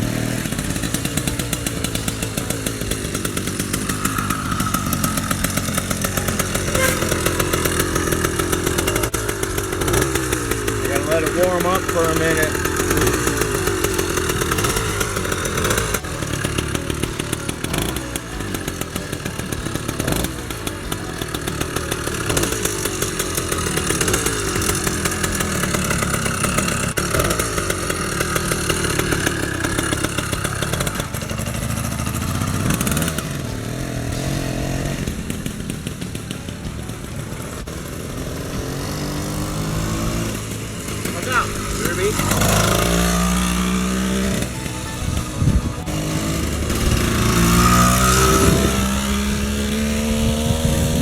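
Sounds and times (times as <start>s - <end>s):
two-stroke engine revving: 0.0s - 51.0s.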